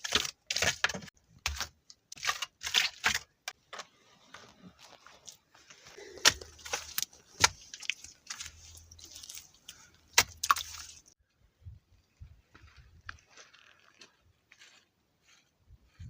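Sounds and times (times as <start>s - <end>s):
wet plaster slapping: 0.0s - 3.3s, 6.1s - 11.2s
plaster scraping and smearing: 4.0s - 11.2s.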